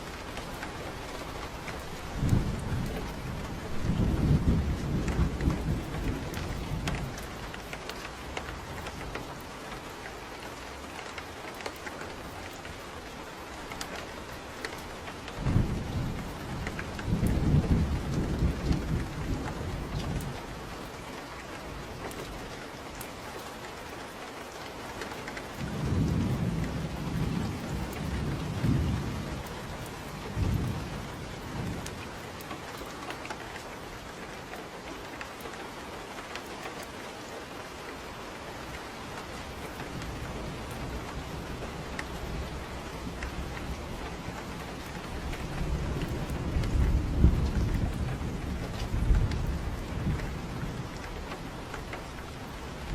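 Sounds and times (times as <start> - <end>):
steady rain: 0.0 - 52.9
rolling thunder: 2.0 - 7.6, 15.3 - 20.6, 25.6 - 32.1, 39.4 - 52.9.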